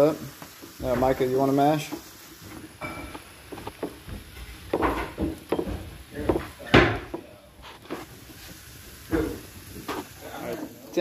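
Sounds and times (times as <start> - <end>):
masher knocking against pot: 3.8 - 7.2.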